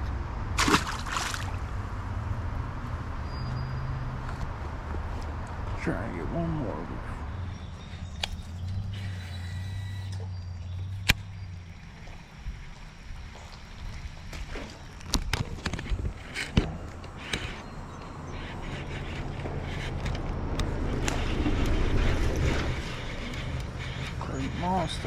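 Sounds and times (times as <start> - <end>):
fishing rod and reel clicks: 8.1 - 11.6, 14.9 - 25.0.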